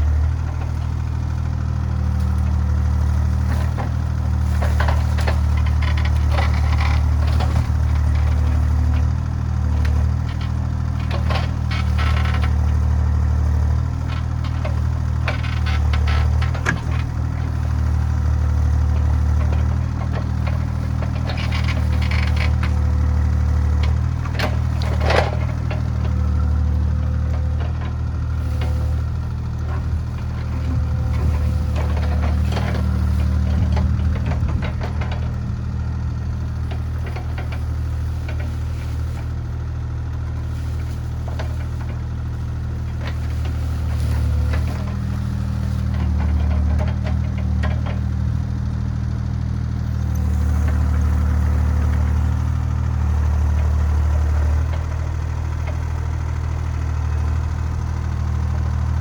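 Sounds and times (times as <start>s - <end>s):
diesel engine running: 0.0s - 59.0s
knocks and clanks: 9.7s - 12.9s, 18.9s - 29.0s, 29.6s - 35.4s.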